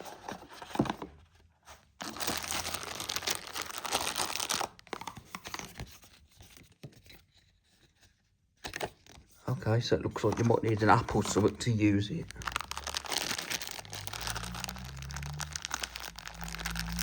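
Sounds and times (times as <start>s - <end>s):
packaging crinkling and tearing: 2.0s - 5.9s, 10.2s - 17.0s.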